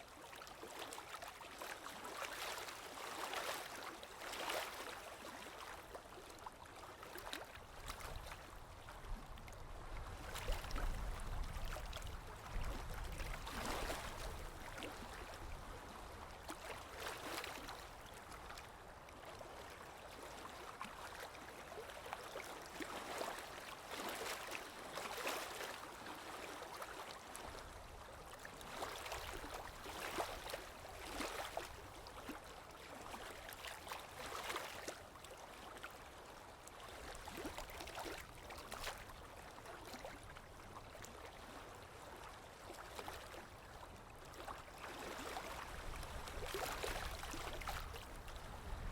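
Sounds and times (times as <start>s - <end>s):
water splashing and gurgling: 10.0s - 16.0s, 28.6s - 35.5s, 42.2s - 48.9s.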